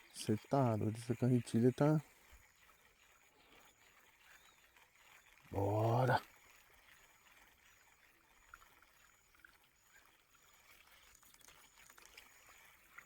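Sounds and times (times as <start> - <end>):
faint high-pitched chirp: 3.5 - 6.2, 7.6 - 13.0.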